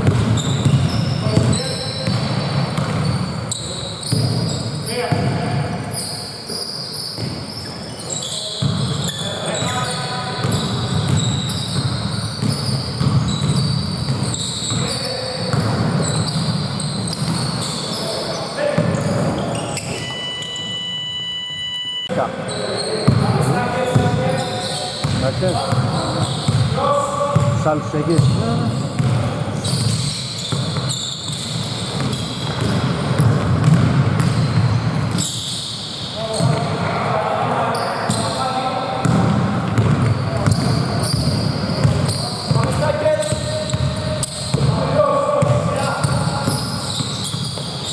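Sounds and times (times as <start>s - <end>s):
basketball bouncing and footsteps: 0.0s - 3.3s, 4.0s - 5.4s, 10.4s - 17.9s, 25.0s - 26.7s, 27.3s - 35.4s, 39.0s - 47.9s
shoe squeaks on court: 0.0s - 36.8s, 37.6s - 47.9s.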